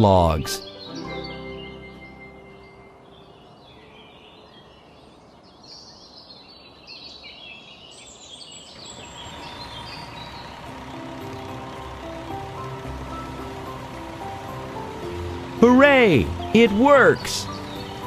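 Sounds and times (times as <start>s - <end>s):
background music: 0.0s - 3.6s, 9.1s - 18.0s
birds chirping: 0.0s - 18.0s.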